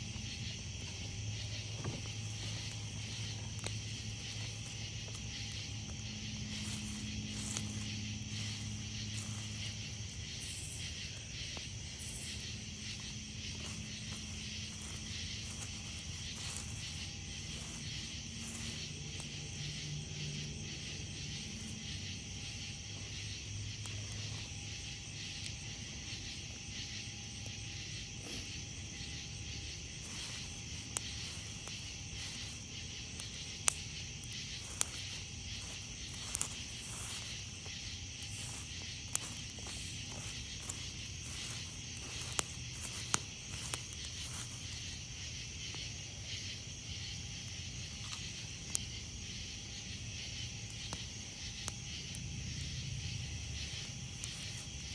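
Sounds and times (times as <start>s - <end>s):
crickets chirping: 0.0s - 54.9s
campfire crackling pops: 0.1s - 54.9s.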